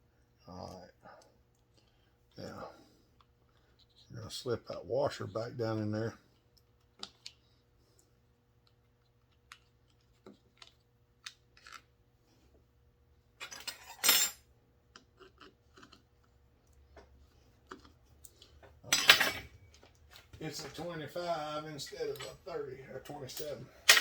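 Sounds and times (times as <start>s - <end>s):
small metal parts clinking: 13.4s - 14.4s, 18.9s - 19.5s, 23.1s - 24.0s.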